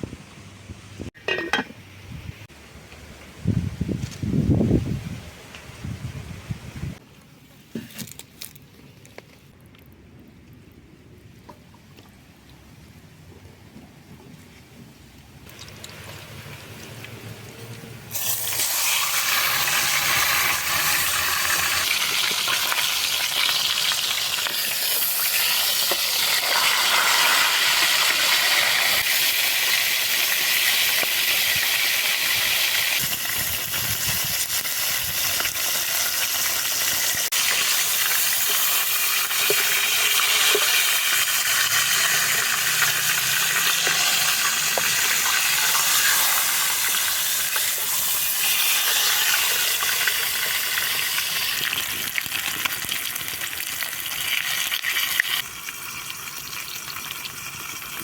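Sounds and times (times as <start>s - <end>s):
food sizzling in hot oil: 18.1s - 58.0s.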